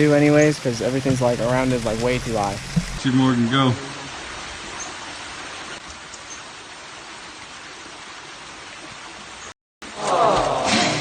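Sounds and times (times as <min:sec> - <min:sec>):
waterfall rushing: 0:00.0 - 0:05.8.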